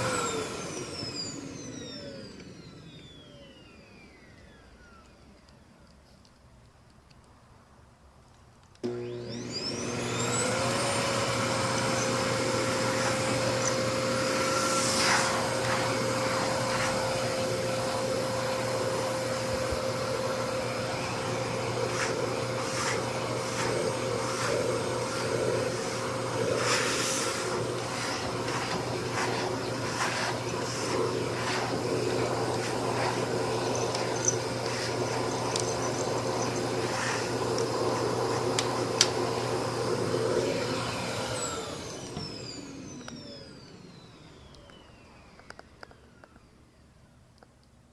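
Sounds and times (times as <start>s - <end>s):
vacuum cleaner running: 0.0s - 5.6s, 8.8s - 46.6s
rushes of air: 18.8s - 35.5s.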